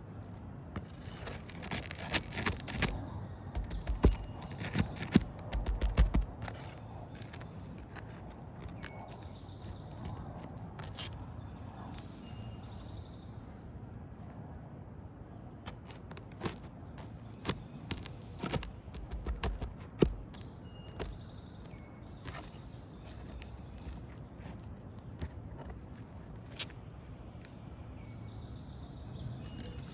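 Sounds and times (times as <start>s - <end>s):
tool clicks and taps on roof: 3.6s - 8.2s, 15.8s - 21.2s.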